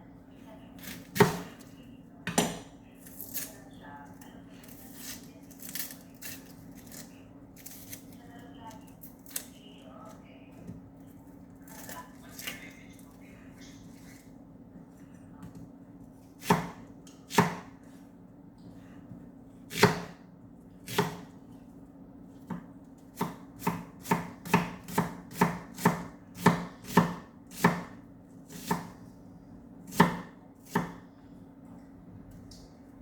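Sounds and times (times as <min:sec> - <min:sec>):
knife chopping on cutting board: 0:00.8 - 0:01.6, 0:16.4 - 0:17.8, 0:19.7 - 0:20.2, 0:20.9 - 0:21.3, 0:22.4 - 0:29.0, 0:29.9 - 0:31.0.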